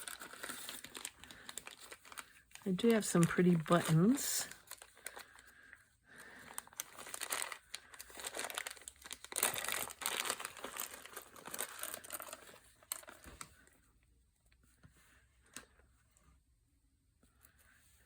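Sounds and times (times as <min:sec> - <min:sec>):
packaging crinkling and rustling: 0:00.0 - 0:05.5, 0:06.2 - 0:13.6.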